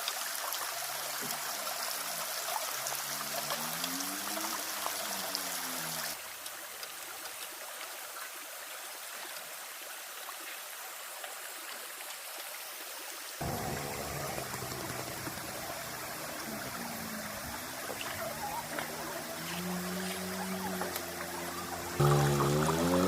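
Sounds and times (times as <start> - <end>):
running water rushing: 0.0 - 23.0
low hum: 13.4 - 23.0.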